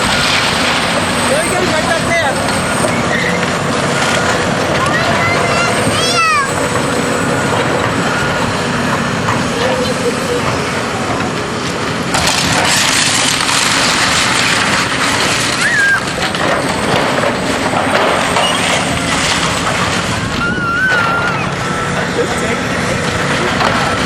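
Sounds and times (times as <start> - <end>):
demolition machinery: 0.0 - 24.0
wood crunching and splintering: 11.3 - 24.0
debris falling: 12.1 - 22.1.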